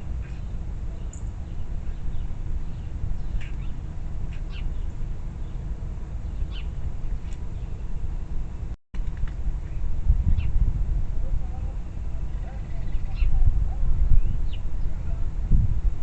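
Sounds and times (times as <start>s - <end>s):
birds chirping: 6.2s - 8.0s.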